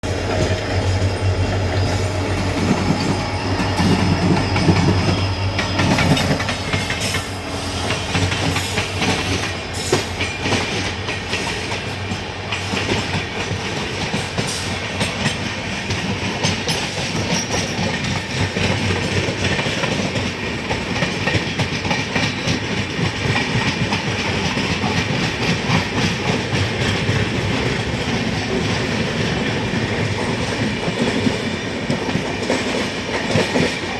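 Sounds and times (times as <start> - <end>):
train wheels clattering over rail joints: 0.0 - 33.9.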